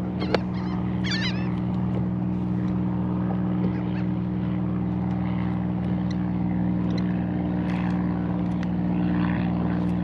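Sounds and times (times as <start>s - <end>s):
boat engine humming: 0.0s - 10.0s
faint high bird calls: 0.1s - 1.6s.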